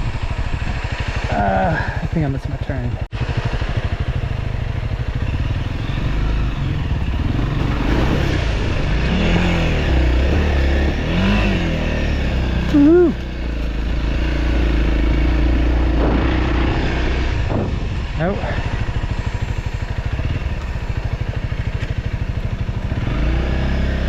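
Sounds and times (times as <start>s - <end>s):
wind noise: 0.0s - 2.3s, 15.7s - 19.1s
motorcycle engine running: 0.0s - 24.0s
rider shouting: 12.6s - 13.2s.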